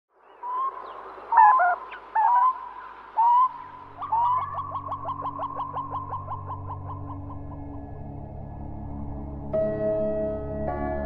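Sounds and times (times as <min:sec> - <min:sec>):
low music drone: 0:03.8 - 0:11.0.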